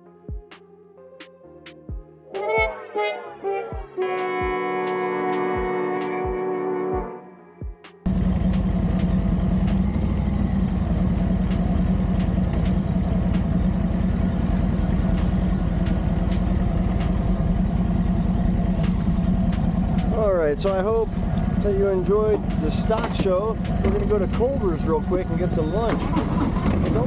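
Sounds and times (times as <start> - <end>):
motorcycle engine running: 8.1 - 27.0.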